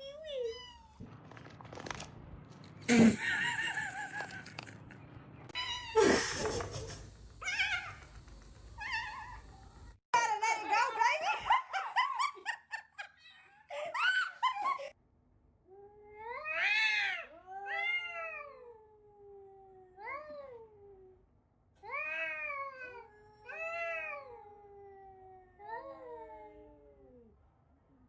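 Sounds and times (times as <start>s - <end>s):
cat yowling: 7.4s - 8.1s, 16.2s - 20.4s.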